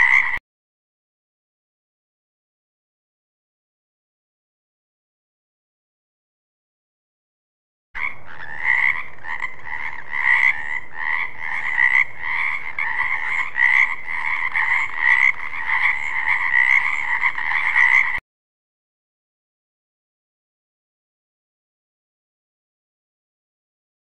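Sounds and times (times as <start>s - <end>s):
frog croaking: 0.0s - 0.4s, 8.0s - 18.2s.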